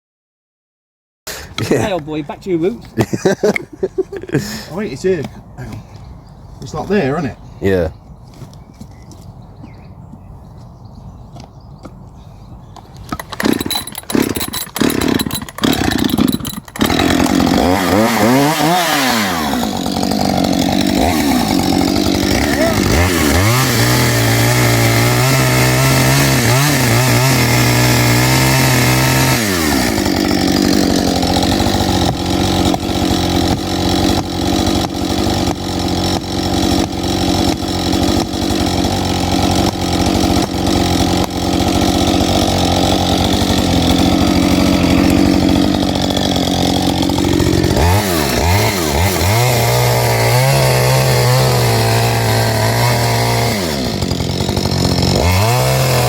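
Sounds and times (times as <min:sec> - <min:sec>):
chainsaw cutting wood: 0:01.3 - 0:05.4, 0:12.8 - 0:56.0
chainsaw revving: 0:13.1 - 0:56.0.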